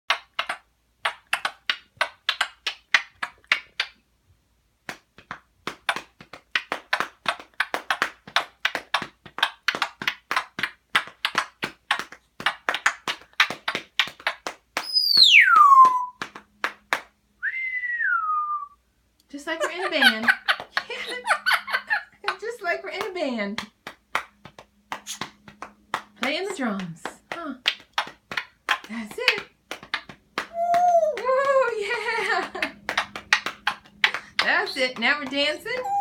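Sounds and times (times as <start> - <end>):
parrot tapping a beat: 0.1 - 4.0, 4.8 - 17.2, 19.7 - 36.0
parrot whistle falling in pitch: 14.8 - 16.2, 17.4 - 18.8.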